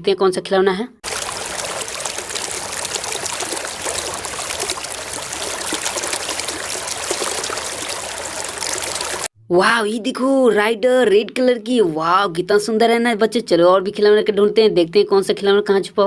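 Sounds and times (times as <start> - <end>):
running water splashing: 1.0 - 9.3.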